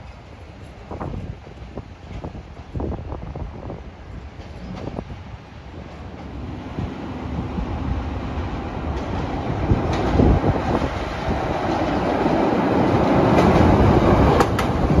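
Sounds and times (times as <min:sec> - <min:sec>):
approaching train rumble: 0:00.0 - 0:15.0
train wheels knocking over rail joints: 0:13.1 - 0:15.0.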